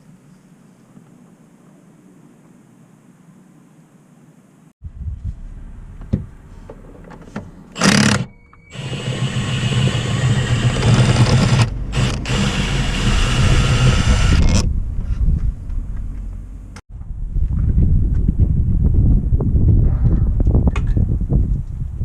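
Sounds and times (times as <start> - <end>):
cordless power tool driving fastener: 7.8 - 14.7.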